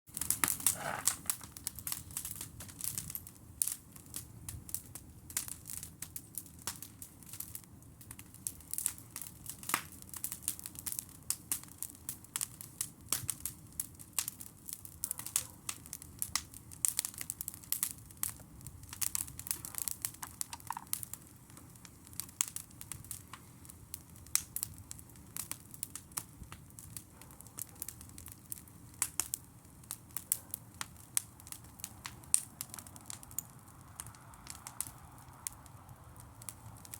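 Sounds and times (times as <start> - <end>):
campfire crackling: 0.1 - 36.9
sharp snaps and pops: 0.1 - 36.9.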